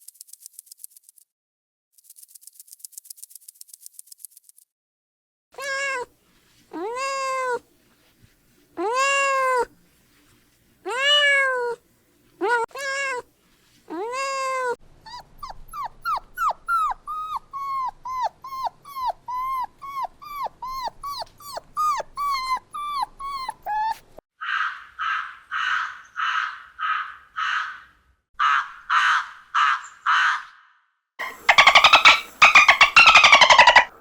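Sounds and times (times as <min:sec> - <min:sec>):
dog yelping: 0:15.1 - 0:24.2, 0:31.2 - 0:34.0.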